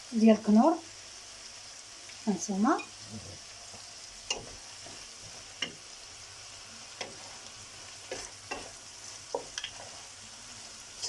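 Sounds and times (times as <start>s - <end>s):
food sizzling in a pan: 0.0s - 11.0s
spoon knocking against pan: 4.3s - 5.0s, 5.6s - 5.8s, 7.0s - 7.2s.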